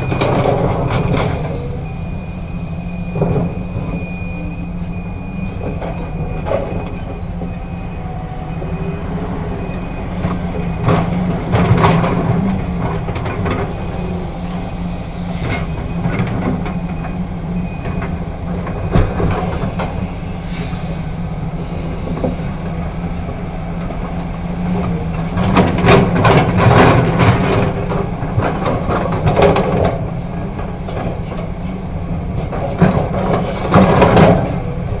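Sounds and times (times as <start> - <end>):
excavator diesel engine running: 0.0 - 35.0
loud clattering and banging: 23.8 - 35.0.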